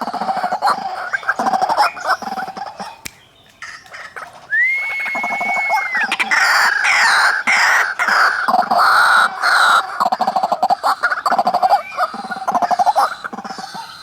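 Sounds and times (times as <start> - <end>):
waterhens croaking: 0.0 - 3.0, 3.6 - 14.0
long steady whistle: 4.5 - 6.1.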